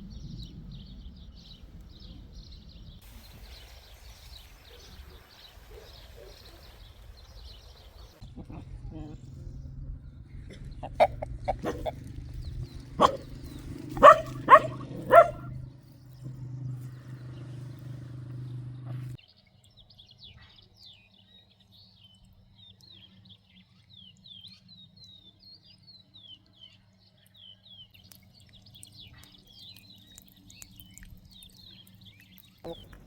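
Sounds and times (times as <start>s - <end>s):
small birds chirping: 0.0s - 33.0s
loud animal calls: 10.4s - 16.4s.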